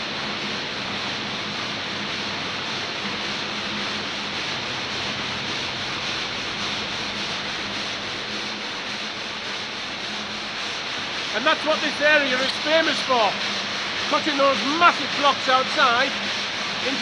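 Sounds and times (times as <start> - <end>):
low machine hum: 0.0 - 17.0
saw grinding through stone: 4.8 - 17.0.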